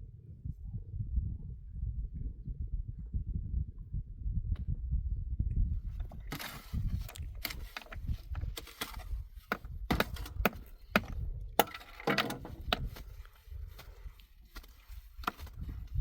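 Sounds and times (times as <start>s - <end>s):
low rumble: 0.0s - 11.6s
wood chopping cracks: 8.6s - 13.1s.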